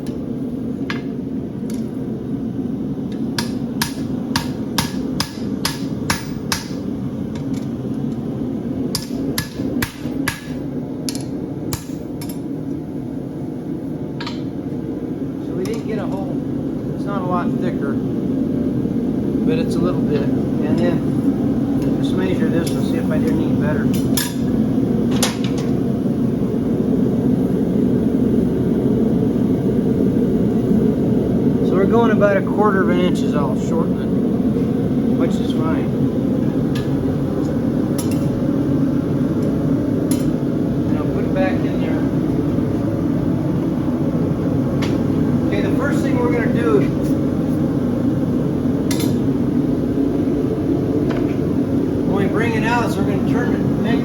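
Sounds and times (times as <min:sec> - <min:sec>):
gas burner roaring: 0:00.0 - 0:54.0
steady low rush: 0:00.0 - 0:54.0
hammer striking steel on anvil: 0:03.4 - 0:06.9, 0:08.9 - 0:12.5, 0:23.9 - 0:24.5, 0:38.0 - 0:38.3.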